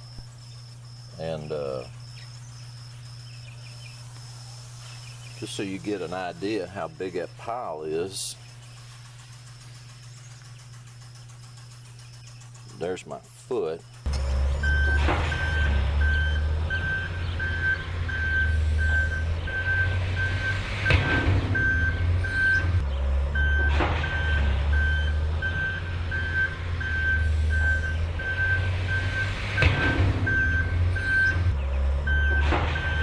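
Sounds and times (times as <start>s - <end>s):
low engine drone: 0.0s - 33.0s
reversing alarm beeping: 9.0s - 33.0s.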